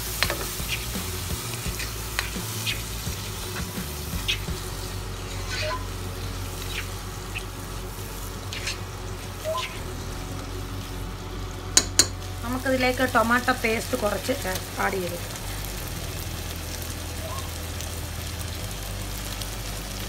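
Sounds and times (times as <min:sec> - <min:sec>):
food sizzling in oil in a pan: 0:00.0 - 0:20.0
spoon clinking and scraping a pan: 0:11.8 - 0:12.2.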